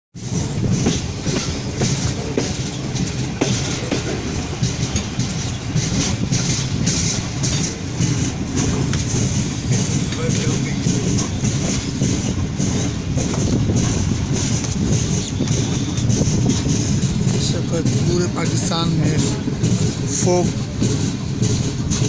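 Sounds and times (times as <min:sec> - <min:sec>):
train wheels rumbling on rail: 0:00.2 - 0:22.0
wheels clicking over rail joints: 0:00.2 - 0:22.0.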